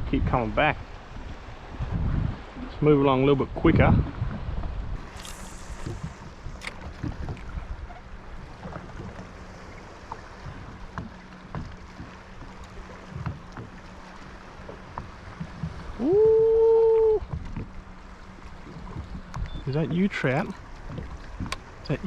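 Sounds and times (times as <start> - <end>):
wind noise: 0.0 - 9.3
water wash: 5.0 - 22.0
light knocks against hull: 5.8 - 16.0, 17.2 - 21.8.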